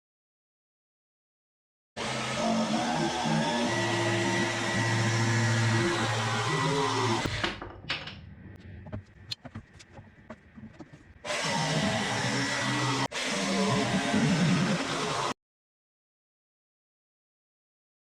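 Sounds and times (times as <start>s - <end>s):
power tool motor humming: 2.0s - 7.4s, 11.2s - 15.3s.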